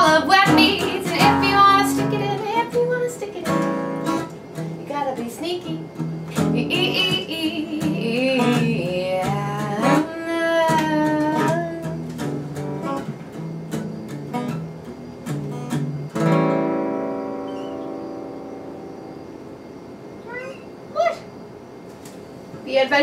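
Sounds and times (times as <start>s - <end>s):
acoustic guitar strumming: 0.0s - 20.8s
person singing: 6.5s - 12.0s.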